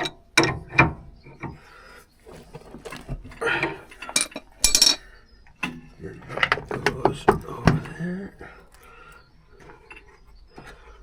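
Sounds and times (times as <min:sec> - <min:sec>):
metal tools clinking: 0:02.3 - 0:07.8.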